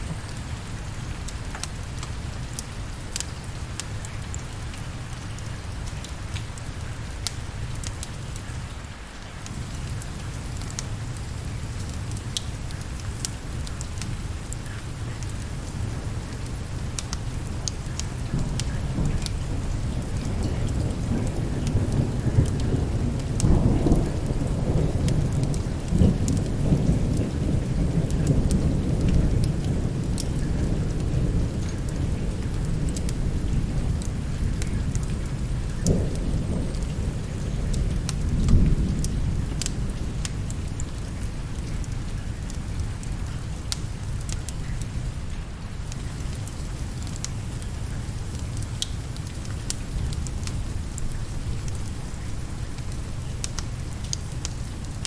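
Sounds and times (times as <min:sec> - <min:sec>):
steady rain: 0:00.0 - 0:55.0
rolling thunder: 0:17.3 - 0:43.6.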